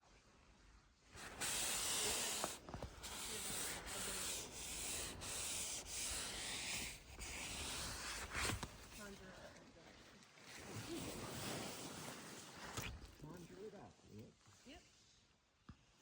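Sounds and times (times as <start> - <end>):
fabric rubbing against microphone: 1.2 - 13.6.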